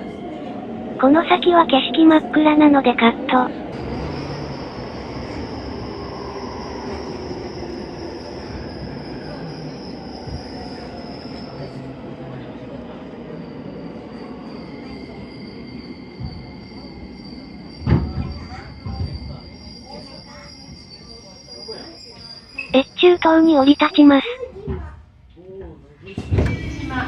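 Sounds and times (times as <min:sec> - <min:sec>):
wheel squeal: 0:13.8 - 0:23.5
train running noise: 0:14.3 - 0:27.0.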